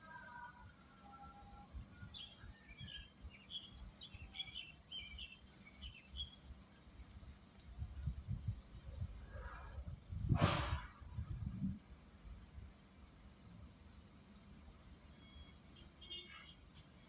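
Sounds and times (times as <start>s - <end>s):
bird chirping: 2.0s - 6.5s
low thumping rumble on microphone: 7.7s - 11.9s.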